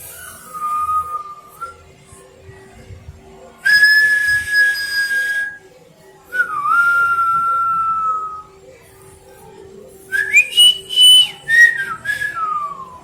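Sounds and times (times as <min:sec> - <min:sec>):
whistling held notes: 0:00.0 - 0:01.9, 0:03.6 - 0:05.7, 0:06.3 - 0:08.5, 0:10.1 - 0:13.0.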